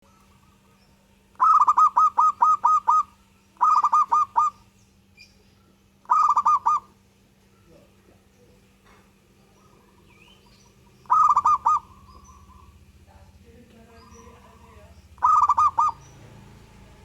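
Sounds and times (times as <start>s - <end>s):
faint steady hum: 0.0s - 17.0s
dove cooing: 1.4s - 4.7s, 6.0s - 8.0s, 8.8s - 13.0s, 13.8s - 17.0s.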